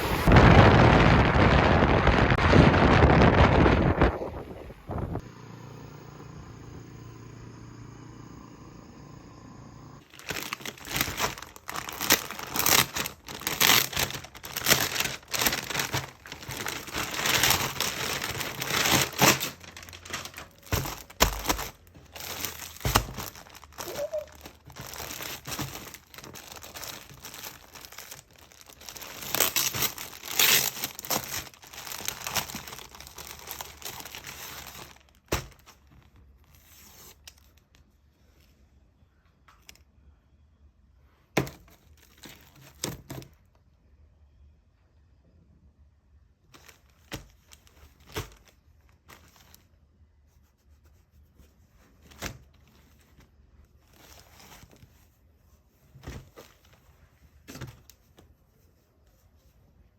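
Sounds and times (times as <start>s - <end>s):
material crinkling and rustling: 10.0s - 38.5s, 41.4s - 43.6s, 46.5s - 49.8s, 50.4s - 59.9s.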